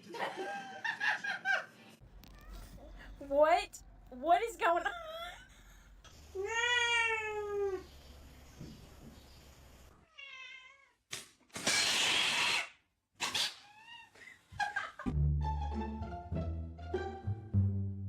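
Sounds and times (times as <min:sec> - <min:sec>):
cat meowing: 0:10.0 - 0:11.0.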